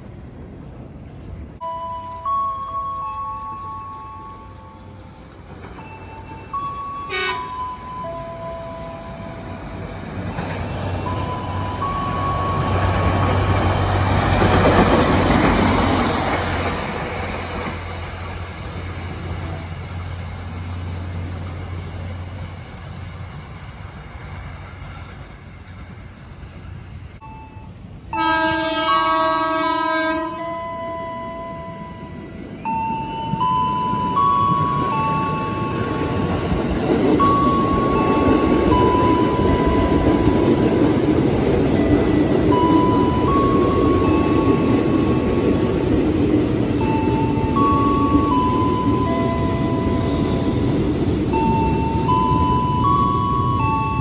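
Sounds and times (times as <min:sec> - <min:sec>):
railcar engine and wheels passing: 0:00.0 - 0:54.0
quiet melody: 0:01.6 - 0:13.5
train horn: 0:07.0 - 0:07.6, 0:27.4 - 0:32.4.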